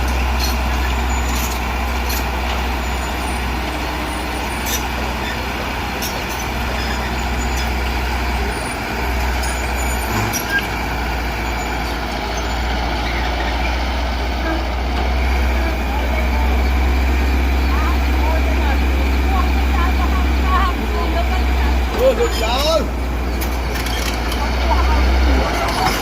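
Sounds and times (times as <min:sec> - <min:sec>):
diesel machinery engine drone: 0:00.0 - 0:26.0.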